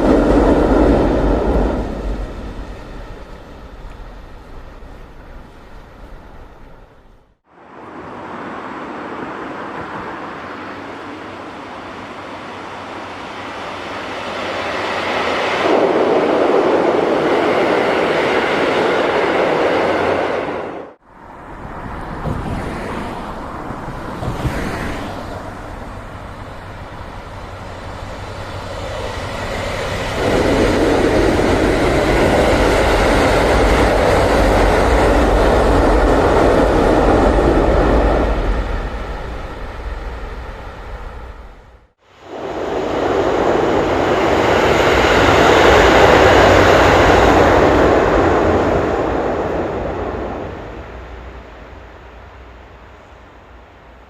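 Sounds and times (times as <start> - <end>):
train passing on tracks: 0.0 - 54.0.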